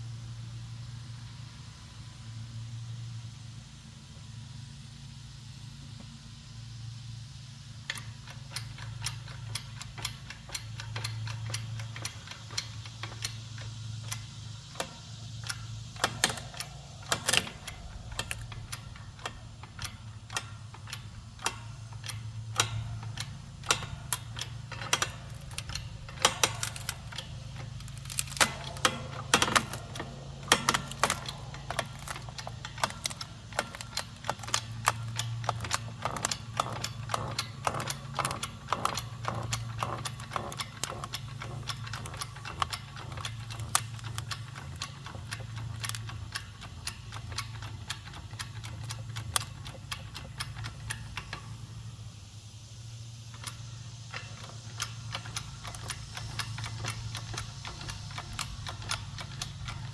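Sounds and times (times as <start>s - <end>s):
log splitter clicking and cracking: 7.9s - 51.8s, 53.3s - 59.9s
low hum: 9.4s - 36.0s.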